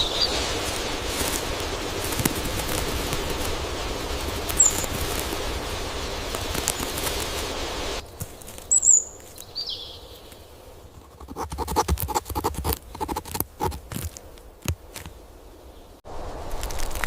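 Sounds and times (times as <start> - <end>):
high bird chirps: 0.0 - 0.4, 4.5 - 4.9, 8.7 - 10.4
steady background hiss: 0.0 - 11.4, 12.7 - 17.0.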